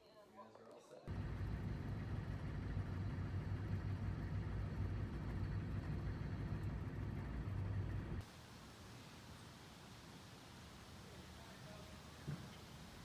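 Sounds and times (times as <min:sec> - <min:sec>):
van engine running: 0:01.1 - 0:08.3.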